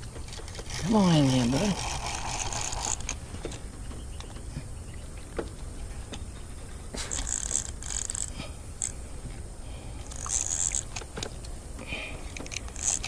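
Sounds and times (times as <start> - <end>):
fishing reel ticking whir: 0.0 - 3.6, 6.9 - 13.0
small reel clicks: 0.0 - 3.6, 6.9 - 9.0, 10.0 - 11.6, 12.2 - 13.0
steady low rumble: 0.0 - 13.0.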